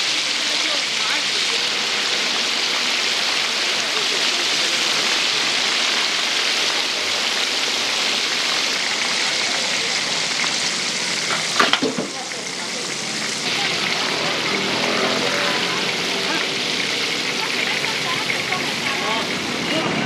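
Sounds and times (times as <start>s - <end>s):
food deep-frying in hot oil: 0.0s - 20.0s
sharp knocks clattering: 11.3s - 12.2s.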